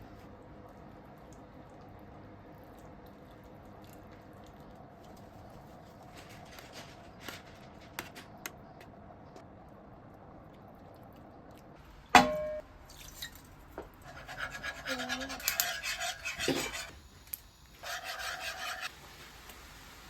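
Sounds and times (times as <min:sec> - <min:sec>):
objects rubbing and scraping: 0:14.0 - 0:17.0, 0:17.8 - 0:18.9.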